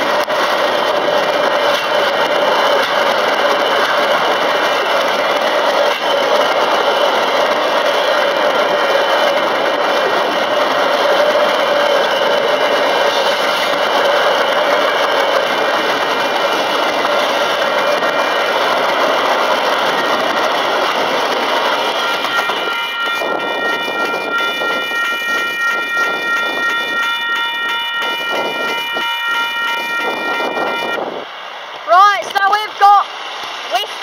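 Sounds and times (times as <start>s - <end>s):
train wheels rolling on rail: 0.0s - 34.0s
crossing bell ringing: 21.6s - 31.0s.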